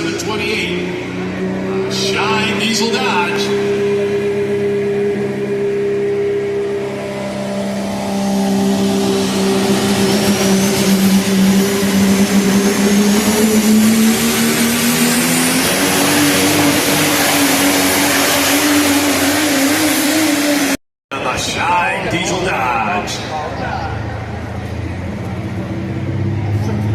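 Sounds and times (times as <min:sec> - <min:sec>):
truck engine running under load: 0:00.0 - 0:20.8
high-pitched whine: 0:00.0 - 0:21.5.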